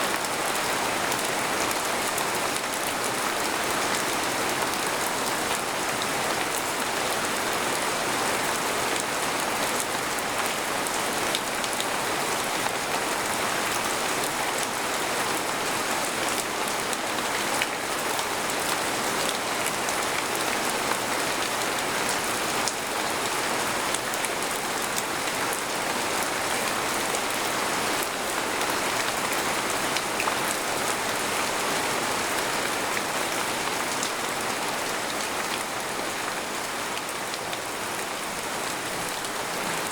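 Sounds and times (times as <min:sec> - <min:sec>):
rain falling on a tent: 0:00.0 - 0:39.9.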